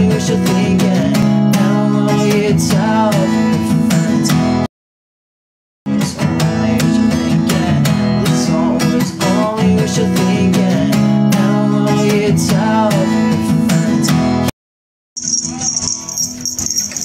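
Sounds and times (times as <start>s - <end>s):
acoustic guitar strumming: 0.0s - 4.7s, 5.9s - 14.5s.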